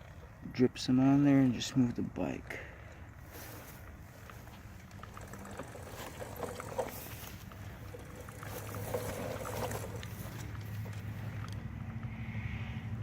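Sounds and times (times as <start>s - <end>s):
small engine idling: 3.3s - 12.6s.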